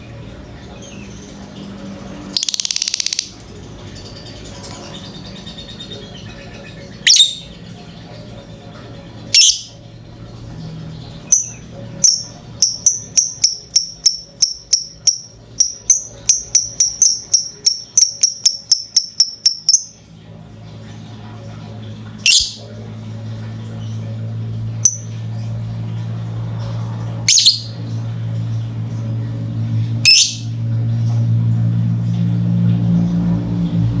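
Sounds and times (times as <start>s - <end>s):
lovebird rapid high chirps: 2.3s - 3.4s, 7.1s - 7.5s, 9.4s - 9.7s, 11.3s - 20.0s, 24.8s - 25.1s, 27.3s - 27.8s, 30.1s - 30.5s
lovebird shrill calls: 2.4s - 3.4s, 7.0s - 7.5s.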